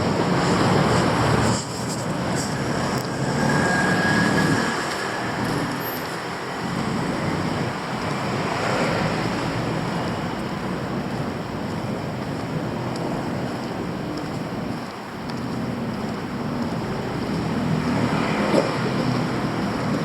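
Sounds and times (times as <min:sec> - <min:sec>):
passing traffic hiss: 0:00.0 - 0:10.0.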